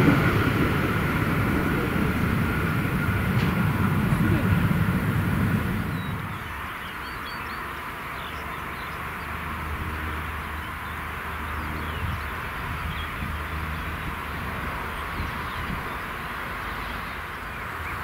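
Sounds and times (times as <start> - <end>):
birds chirping: 0.0 - 9.4.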